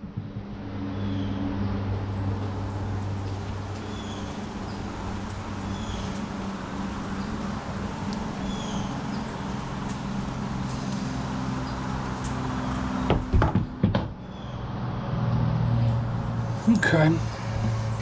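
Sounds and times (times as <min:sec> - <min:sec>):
low knocks: 0:00.0 - 0:00.8.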